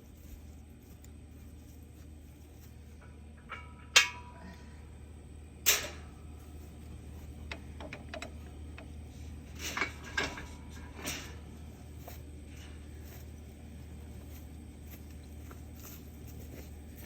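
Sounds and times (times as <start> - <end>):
metal hitch knocking and clanking: 7.4 - 9.0.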